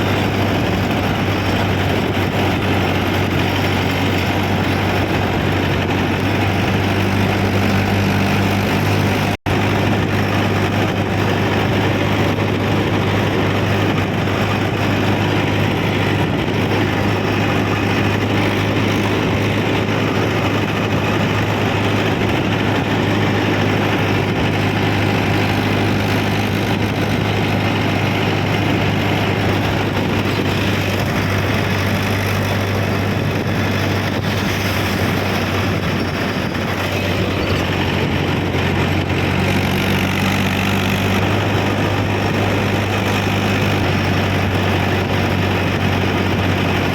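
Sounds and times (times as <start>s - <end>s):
tractor diesel engine droning: 0.0s - 46.9s.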